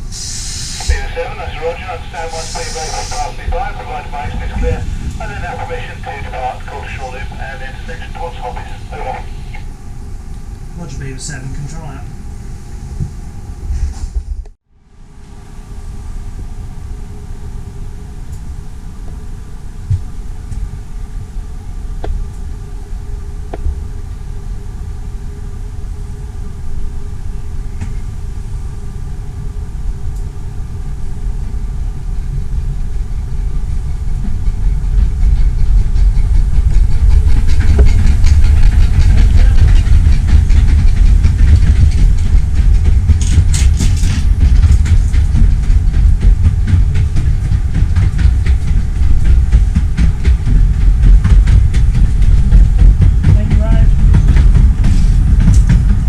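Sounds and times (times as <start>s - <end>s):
miniature train rumbling: 0.0s - 9.7s, 16.4s - 56.0s
short high hiss: 0.1s - 1.0s, 2.4s - 3.4s.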